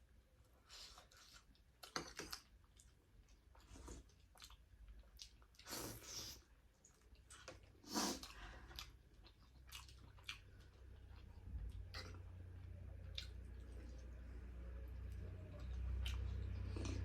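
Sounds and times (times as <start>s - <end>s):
person chewing food: 0.4s - 17.0s.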